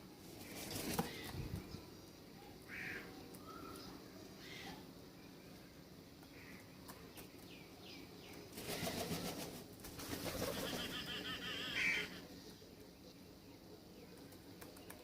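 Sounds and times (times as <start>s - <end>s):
bird wingbeats: 8.5s - 11.1s
rapid warbling bird call: 10.2s - 12.2s.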